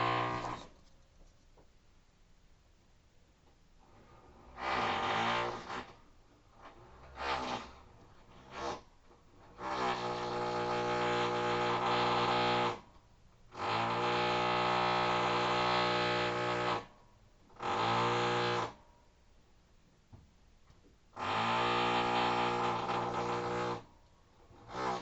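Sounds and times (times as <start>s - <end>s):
electric hammer drill buzzing: 0.0s - 0.7s, 21.2s - 23.8s.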